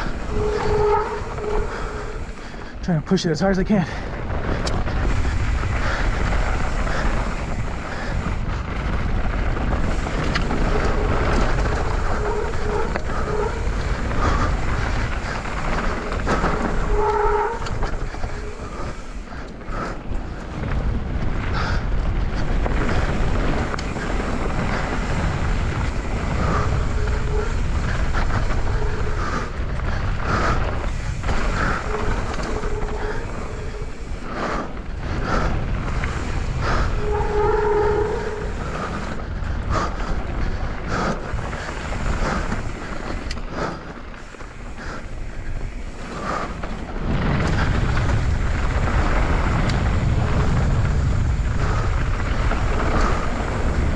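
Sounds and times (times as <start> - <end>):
short squeaks: 0.0 - 2.5, 10.6 - 14.4, 15.2 - 19.2, 26.4 - 29.5, 31.3 - 34.3, 37.0 - 39.0
bike rattling: 0.0 - 53.9
tyres rumbling on dirt: 0.0 - 53.9
wind buffeting microphone: 0.0 - 53.9.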